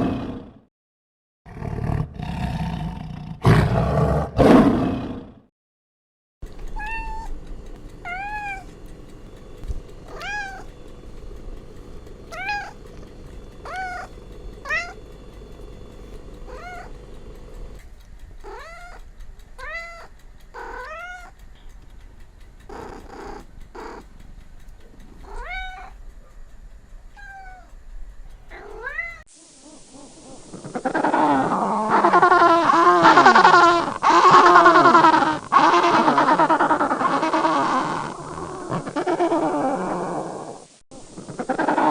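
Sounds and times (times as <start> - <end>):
cat meowing: 6.7 - 7.4, 8.0 - 8.8, 10.0 - 10.7, 12.3 - 12.9, 13.6 - 15.0, 16.5 - 17.0, 18.4 - 19.0, 19.6 - 21.4, 25.2 - 26.0, 27.2 - 27.7, 28.5 - 29.3, 30.8 - 40.2.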